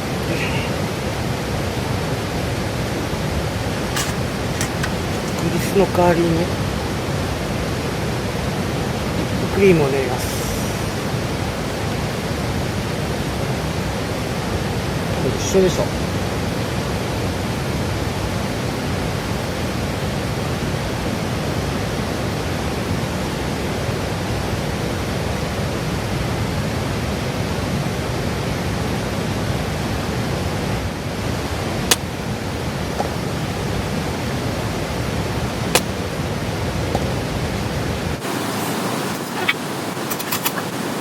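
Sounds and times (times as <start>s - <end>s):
sharp click: 4.0s - 5.6s, 35.8s - 36.0s.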